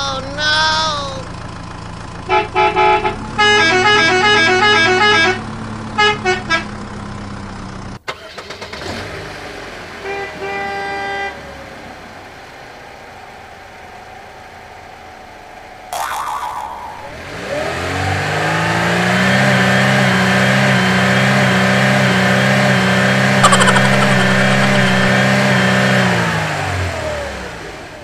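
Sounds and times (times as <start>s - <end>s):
vehicle horns honking: 2.3s - 6.8s, 10.0s - 11.4s, 23.4s - 26.1s.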